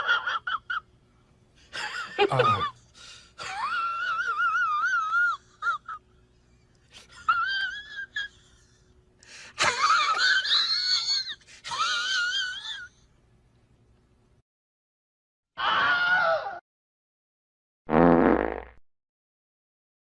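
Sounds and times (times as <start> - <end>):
high wavering wail-like cries: 15.6 - 16.6.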